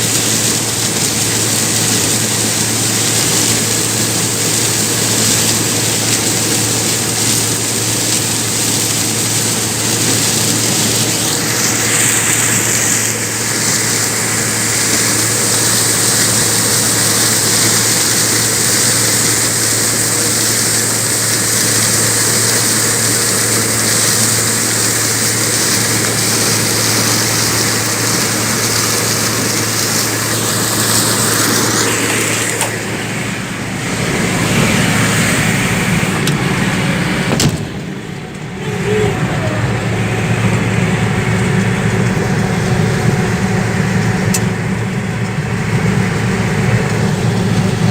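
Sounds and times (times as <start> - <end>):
thresher engine hum: 0.0 - 47.9
thresher rushing noise: 0.0 - 47.9.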